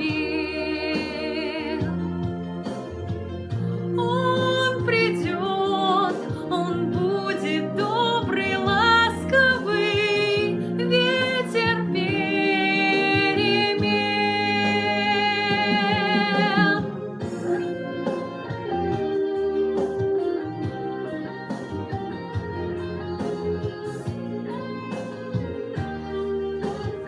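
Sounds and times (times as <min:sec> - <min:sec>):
woman singing a slow song: 0:00.0 - 0:02.6, 0:03.6 - 0:17.8
instrumental backing music: 0:00.0 - 0:27.0.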